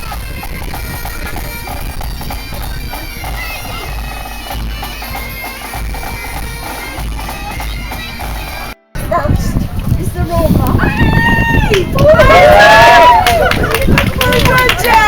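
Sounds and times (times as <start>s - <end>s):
wind rumbling on microphone: 0.0s - 4.8s, 5.8s - 15.0s
bagpipes playing: 0.0s - 9.1s.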